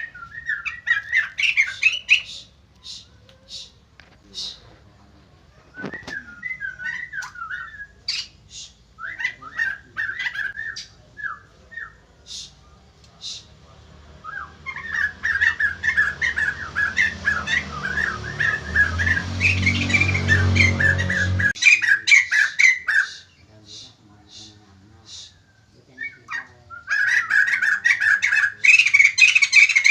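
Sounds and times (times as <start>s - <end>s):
bird whistled calls and chirps: 0.0s - 3.8s, 5.6s - 13.5s, 14.2s - 29.9s
rapid chattering bird calls: 0.0s - 29.9s
low hum: 15.6s - 21.6s.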